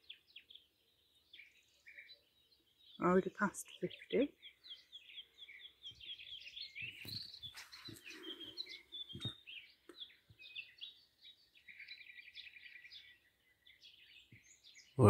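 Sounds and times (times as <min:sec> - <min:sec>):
birds singing and chirping: 0:00.0 - 0:15.0.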